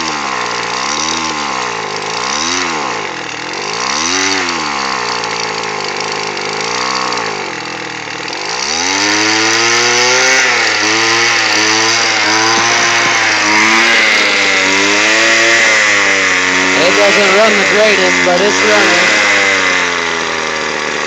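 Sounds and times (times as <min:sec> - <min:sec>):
string trimmer engine revving: 0:00.0 - 0:21.0.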